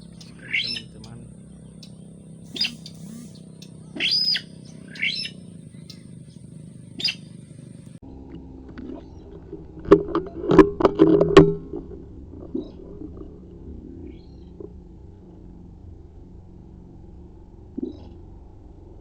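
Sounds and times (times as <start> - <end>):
sharp rising bird calls: 0.0 - 8.0
faint steady hum: 0.0 - 10.2.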